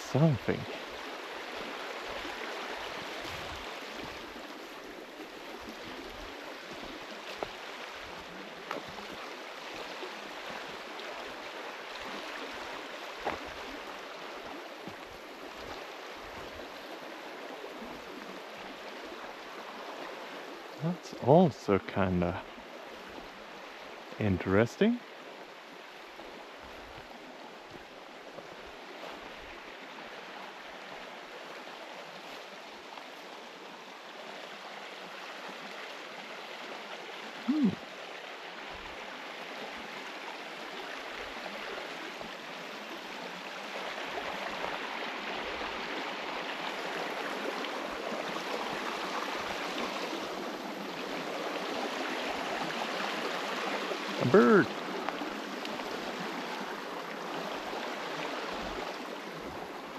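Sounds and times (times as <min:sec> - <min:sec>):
river rushing: 0:00.0 - 0:59.9
person humming: 0:37.5 - 0:37.8.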